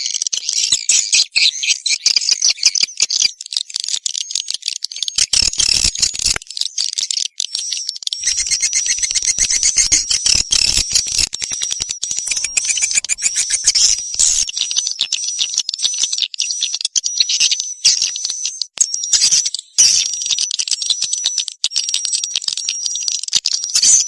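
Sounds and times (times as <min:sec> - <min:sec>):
swiftlets twittering: 0:08.2 - 0:14.5
thin steady high tone: 0:12.3 - 0:14.5.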